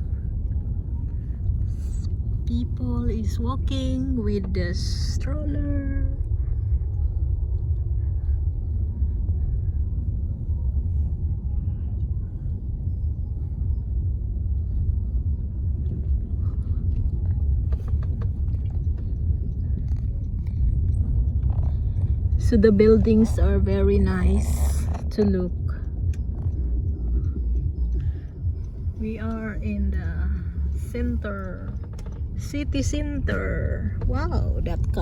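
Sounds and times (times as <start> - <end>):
car driving rumble inside cabin: 0.0 - 35.0.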